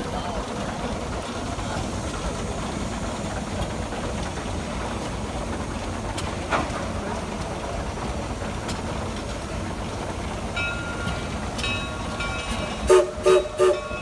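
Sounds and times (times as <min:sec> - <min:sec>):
loud horn toots: 0:12.9 - 0:13.9.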